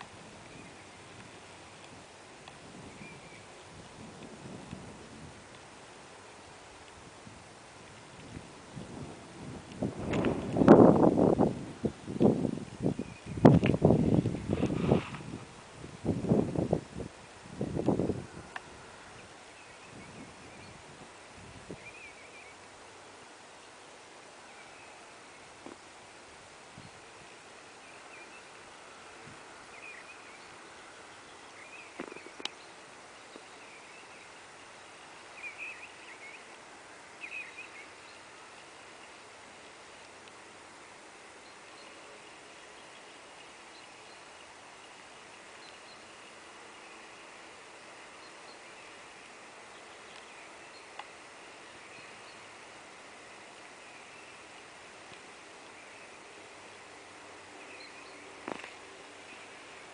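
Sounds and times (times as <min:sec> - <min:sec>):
steady outdoor hiss: 0:00.0 - 0:59.9
faint high bird chirps: 0:02.8 - 0:03.6, 0:12.9 - 0:13.6, 0:21.7 - 0:22.6, 0:27.8 - 0:36.6, 0:37.2 - 0:39.2, 0:49.7 - 0:51.0, 0:57.6 - 0:58.3
faint bird chirps: 0:02.8 - 0:03.7, 0:12.9 - 0:13.6, 0:18.3 - 0:22.7, 0:24.4 - 0:26.0, 0:27.8 - 0:36.6, 0:37.2 - 0:40.1, 0:41.4 - 0:47.0, 0:47.8 - 0:52.7, 0:57.6 - 0:59.8.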